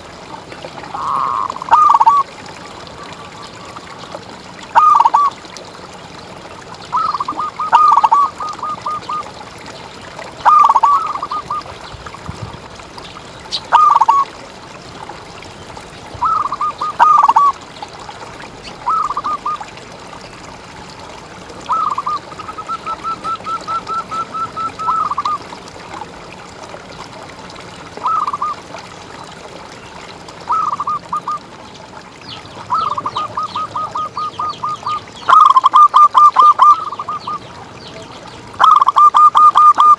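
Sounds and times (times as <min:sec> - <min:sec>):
dove cooing: 0:01.0 - 0:02.2, 0:04.8 - 0:05.3, 0:07.0 - 0:09.2, 0:10.4 - 0:11.6, 0:13.7 - 0:14.2, 0:16.2 - 0:17.5, 0:21.7 - 0:25.5, 0:32.7 - 0:37.2, 0:38.6 - 0:39.9.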